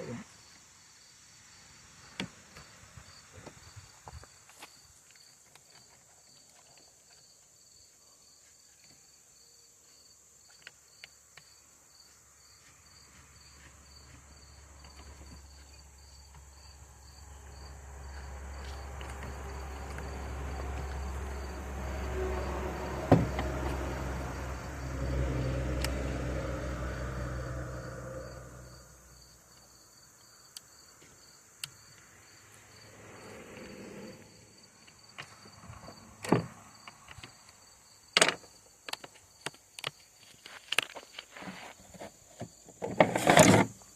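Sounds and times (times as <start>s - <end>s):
crickets chirping: 0.0s - 43.9s
vehicle passing: 12.9s - 29.6s, 32.0s - 37.7s.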